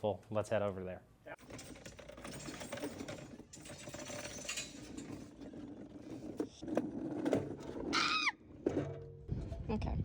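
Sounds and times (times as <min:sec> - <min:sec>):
hand tools clicking and rattling: 0:01.4 - 0:07.9.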